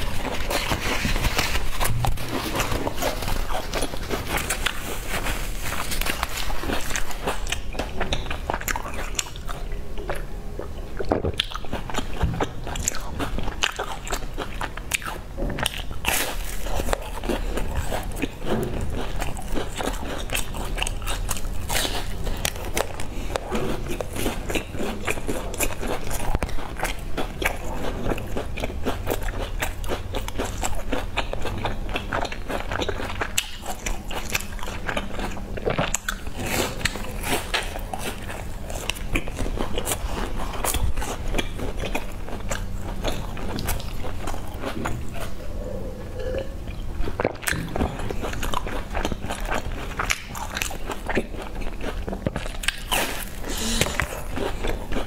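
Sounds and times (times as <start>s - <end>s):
crunchy chewing crackles: 0.0s - 55.0s
wet mouth sounds: 32.0s - 55.0s.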